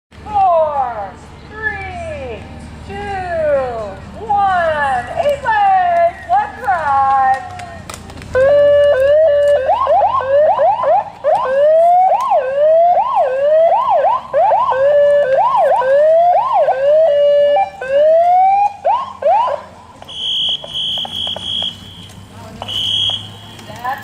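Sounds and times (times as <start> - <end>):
electronic siren yelping: 8.4 - 21.8.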